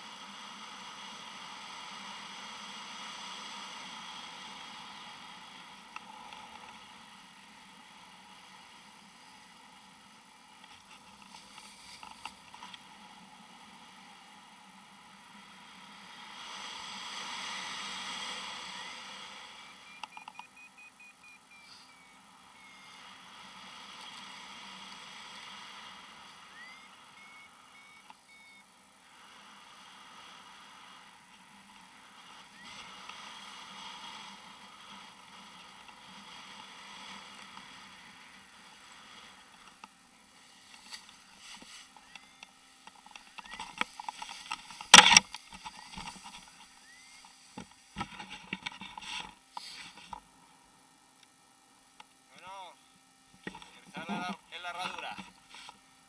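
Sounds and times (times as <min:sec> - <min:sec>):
faint short high beeps: 0:19.6 - 0:22.9, 0:26.5 - 0:28.6.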